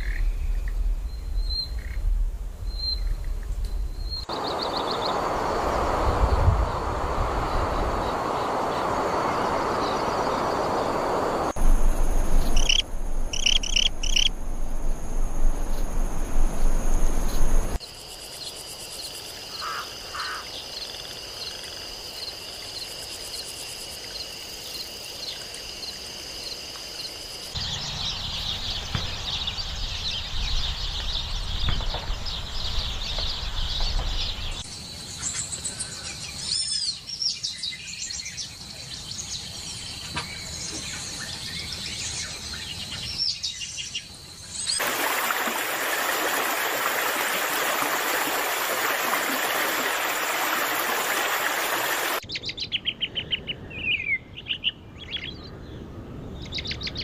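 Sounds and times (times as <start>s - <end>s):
small birds chirping: 2.6s - 6.8s, 7.4s - 14.3s
high insect-like trill: 11.8s - 17.7s
high gliding bird calls: 12.3s - 14.4s.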